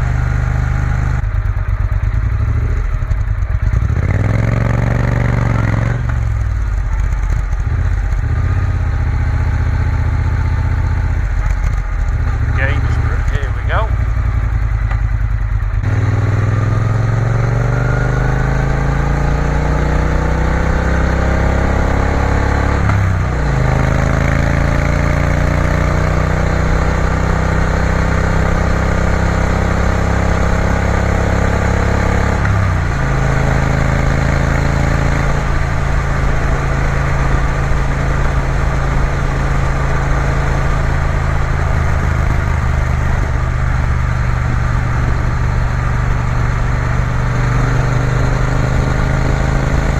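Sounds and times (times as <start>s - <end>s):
motorcycle engine accelerating: 0.0s - 49.9s.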